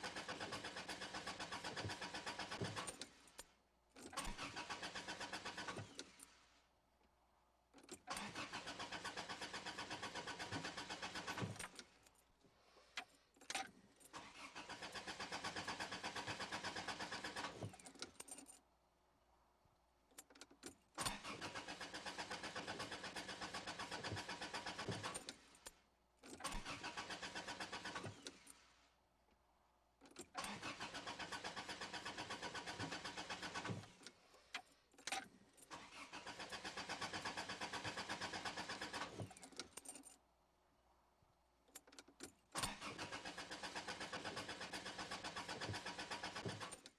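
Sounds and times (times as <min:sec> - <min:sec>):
car engine cranking: 0:04.2 - 0:06.0, 0:08.0 - 0:11.8, 0:14.2 - 0:17.9, 0:21.1 - 0:25.2, 0:26.4 - 0:28.3, 0:30.2 - 0:34.0, 0:35.7 - 0:39.8, 0:42.7 - 0:46.8.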